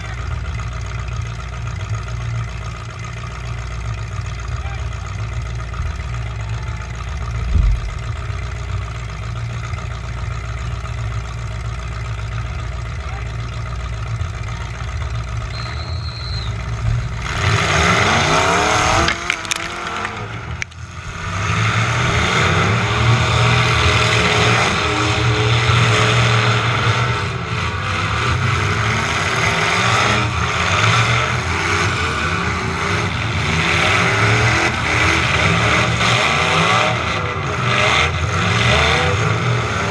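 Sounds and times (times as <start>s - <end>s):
truck engine revving: 0.0s - 39.9s
thump: 7.4s - 8.1s.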